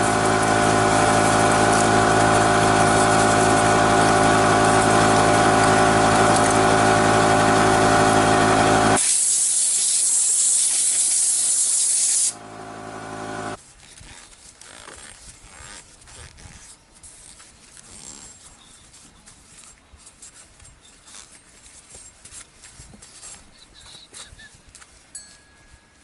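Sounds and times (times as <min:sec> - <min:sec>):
machine motor humming: 0:00.0 - 0:09.0, 0:12.2 - 0:13.6
loud hiss of spraying: 0:00.0 - 0:13.6.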